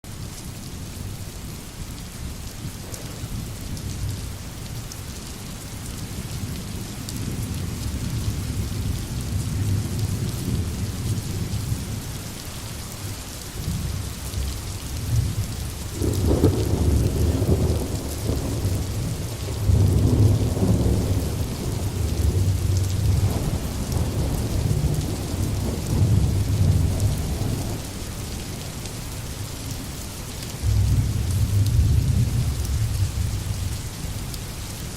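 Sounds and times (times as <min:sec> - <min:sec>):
steady rain falling: 0:00.0 - 0:34.9
thunder rumbling: 0:02.6 - 0:04.4, 0:13.6 - 0:28.4, 0:30.6 - 0:33.8.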